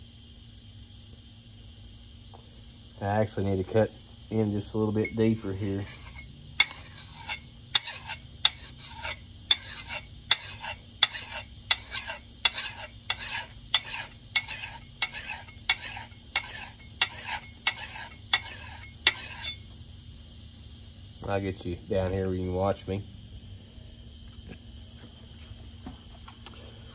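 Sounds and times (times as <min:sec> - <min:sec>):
file rasping on steel: 0:05.0 - 0:19.6.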